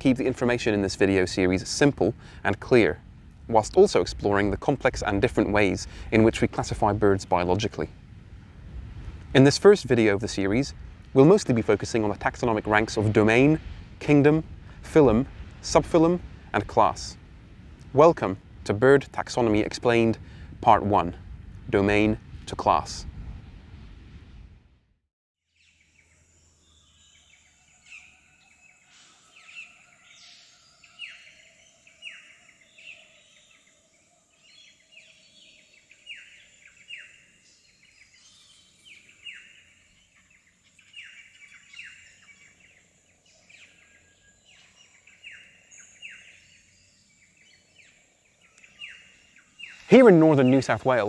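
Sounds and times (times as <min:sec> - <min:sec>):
birds calling: 0:25.6 - 0:51.0.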